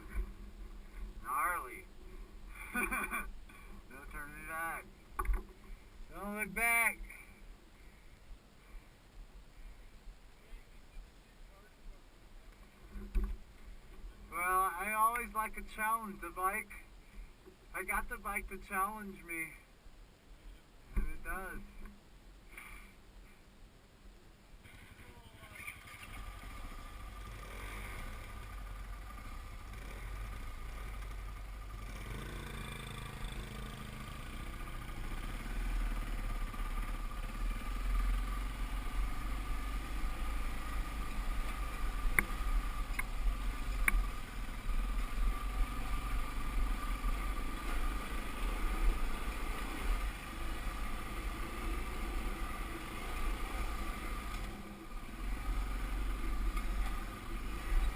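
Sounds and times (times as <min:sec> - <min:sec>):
dirt bike engine running: 0:25.8 - 0:57.9.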